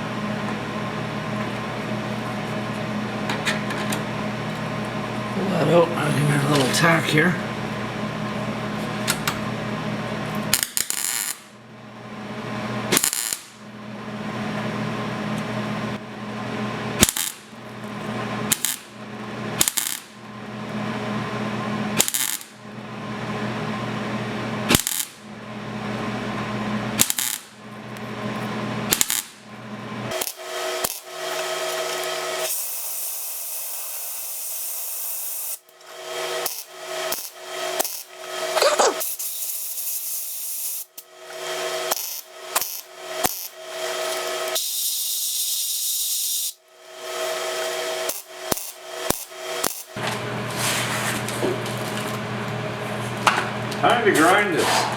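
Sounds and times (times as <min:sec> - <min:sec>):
welder buzzing and crackling: 0:00.0 - 0:11.6, 0:12.8 - 0:13.6, 0:16.8 - 0:20.3, 0:21.9 - 0:22.6, 0:24.7 - 0:25.2, 0:26.0 - 0:29.4, 0:30.1 - 0:50.2.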